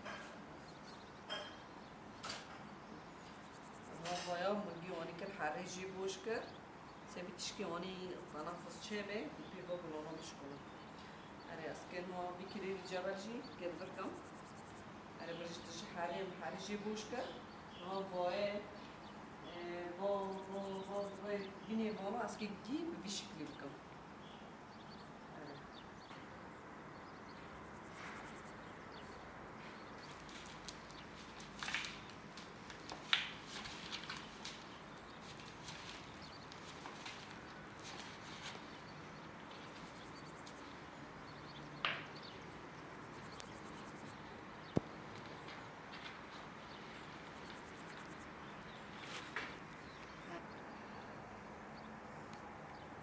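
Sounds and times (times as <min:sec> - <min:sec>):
faint bird calls: 0:46.6 - 0:51.9
insects: 0:46.7 - 0:49.5.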